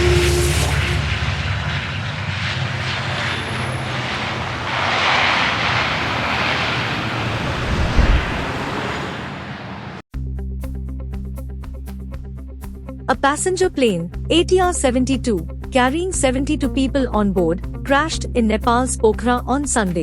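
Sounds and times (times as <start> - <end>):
rushing noise: 0.0 - 10.0
turboprop engines droning: 0.0 - 10.0
low thump: 7.6 - 8.6.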